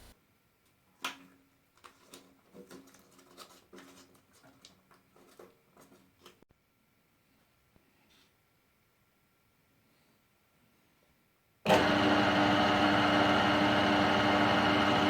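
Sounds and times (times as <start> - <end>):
drill press humming: 11.7 - 15.0.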